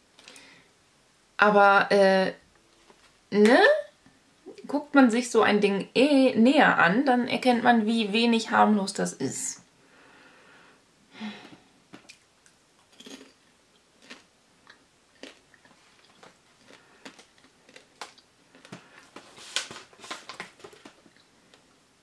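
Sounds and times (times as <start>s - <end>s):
person chewing popcorn: 11.9s - 19.3s.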